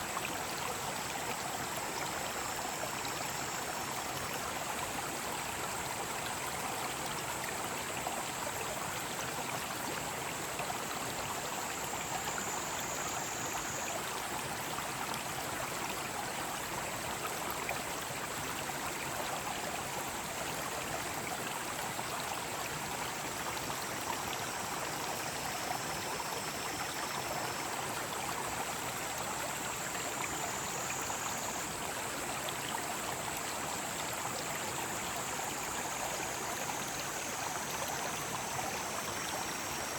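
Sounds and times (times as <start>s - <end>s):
stream rushing over rocks: 0.0s - 39.9s
cicadas droning: 10.9s - 14.6s, 22.3s - 39.9s.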